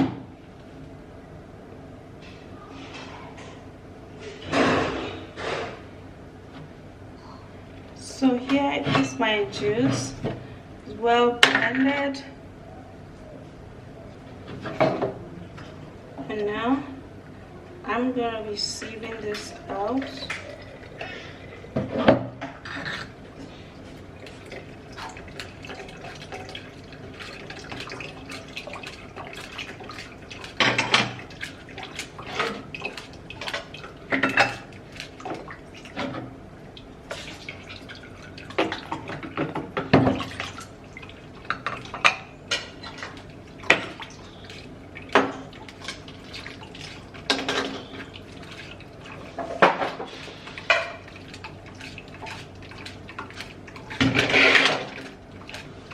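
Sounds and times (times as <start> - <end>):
liquid dripping: 19.2 - 21.3, 23.3 - 54.2.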